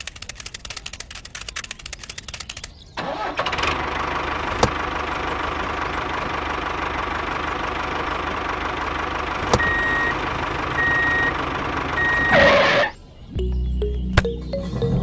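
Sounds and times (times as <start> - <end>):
tractor engine idling: 3.0 - 15.0
reversing alarm beeps: 9.6 - 10.2, 10.8 - 11.4, 12.0 - 15.0.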